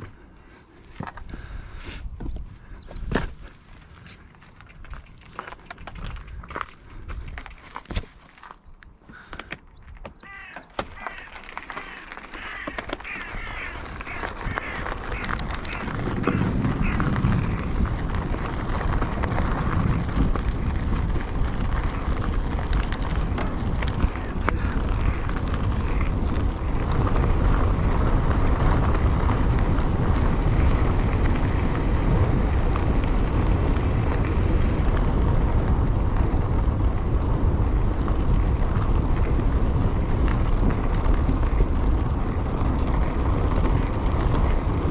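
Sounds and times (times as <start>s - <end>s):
bike tyre and trail noise: 0.0s - 44.9s
wind rush on camera: 0.0s - 44.9s
short repeated calls: 10.2s - 17.0s.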